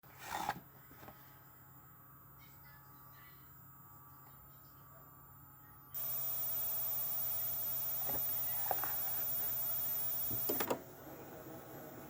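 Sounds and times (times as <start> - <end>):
tape hiss and hum: 3.4 - 12.0.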